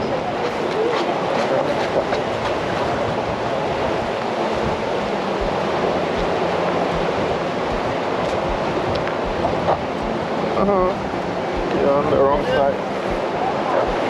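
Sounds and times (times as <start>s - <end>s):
surf: 0.0s - 14.0s
wind rushing: 2.0s - 14.0s
soft low thumps: 3.9s - 14.0s.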